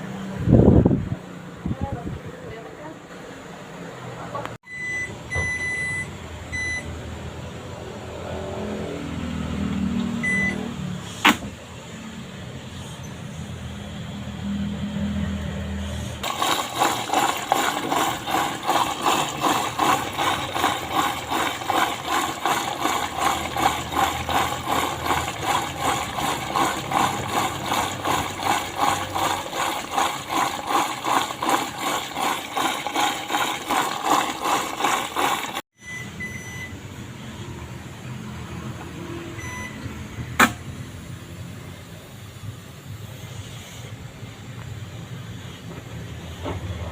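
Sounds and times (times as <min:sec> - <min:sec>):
washing machine rhythmic pulse: 0:04.7 - 0:06.9, 0:16.2 - 0:36.7
sharp click: 0:40.4 - 0:40.6.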